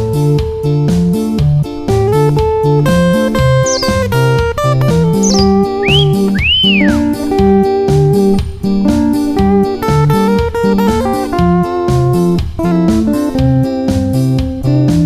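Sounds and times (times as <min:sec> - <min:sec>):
plucked guitar melody: 0:03.6 - 0:04.3, 0:05.2 - 0:07.4
whistle gliding up and down: 0:03.7 - 0:04.0, 0:05.2 - 0:07.2
bass line: 0:05.2 - 0:07.2.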